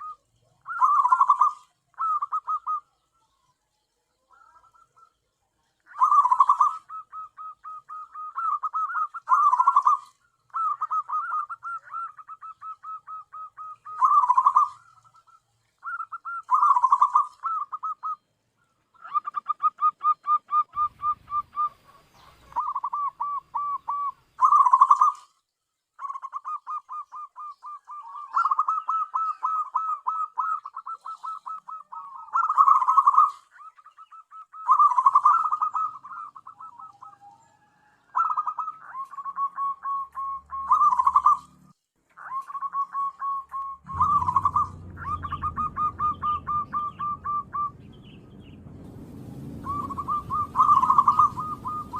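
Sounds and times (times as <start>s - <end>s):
dove cooing: 0.0s - 3.1s, 5.8s - 18.2s, 19.0s - 25.3s, 26.0s - 51.9s.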